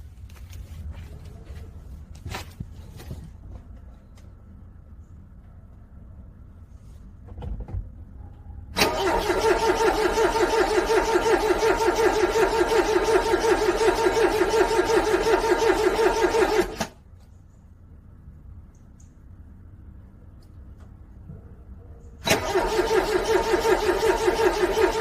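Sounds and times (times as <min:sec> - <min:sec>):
car starter motor cranking: 0:08.8 - 0:17.0, 0:22.2 - 0:25.0.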